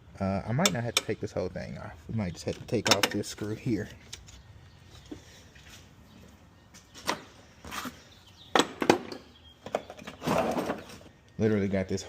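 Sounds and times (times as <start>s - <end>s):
hand tools clicking and knocking: 2.4s - 3.4s.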